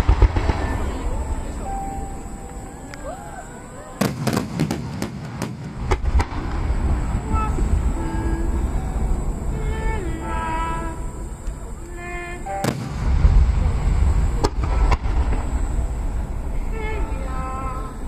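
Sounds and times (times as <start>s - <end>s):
fireworks cracking: 0.0s - 3.2s, 3.8s - 18.0s
deep booming rumble: 4.0s - 11.4s, 12.6s - 18.0s.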